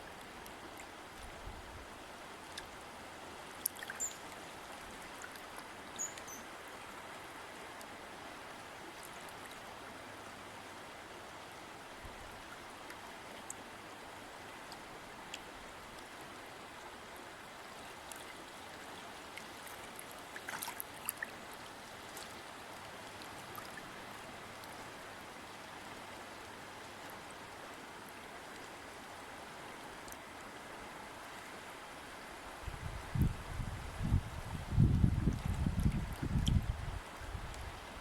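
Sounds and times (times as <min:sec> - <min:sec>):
stream flowing: 0:00.0 - 0:38.0.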